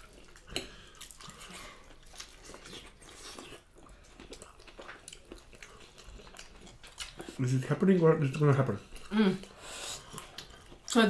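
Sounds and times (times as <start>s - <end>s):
close-up chewing: 0.0s - 11.0s.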